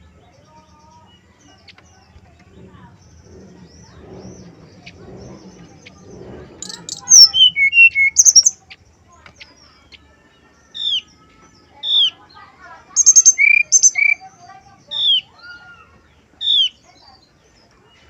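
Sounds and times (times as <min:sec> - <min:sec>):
bird song with whistles: 0:06.6 - 0:08.6, 0:13.0 - 0:14.3.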